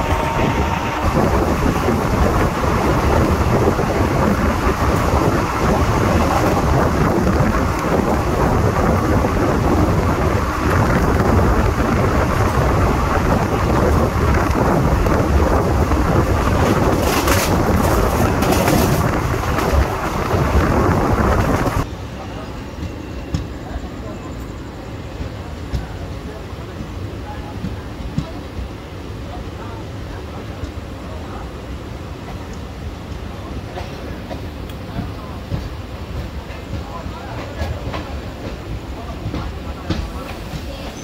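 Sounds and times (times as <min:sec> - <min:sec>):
wind buffeting microphone: 0:00.0 - 0:21.9
train wheels rumbling on track: 0:00.0 - 0:41.0.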